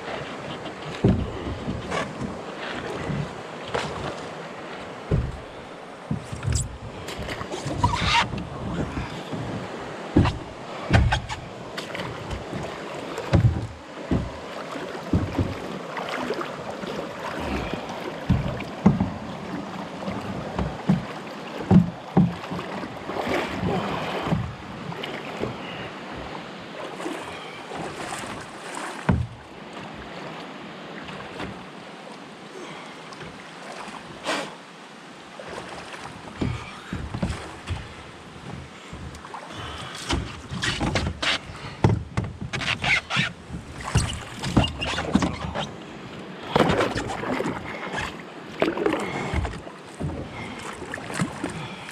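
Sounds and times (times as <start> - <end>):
water washing: 0.0 - 25.8
paddle knocking against hull: 0.0 - 30.4, 31.0 - 31.8, 35.4 - 45.8, 46.4 - 51.9
paddle strokes splashing: 0.0 - 51.9
wind: 0.0 - 51.9.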